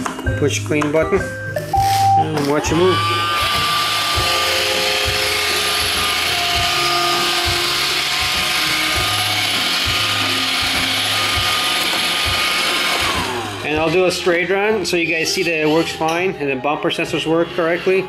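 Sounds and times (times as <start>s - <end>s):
robot vacuum motor whirring: 1.8s - 13.9s
whining drive motors: 2.4s - 14.4s.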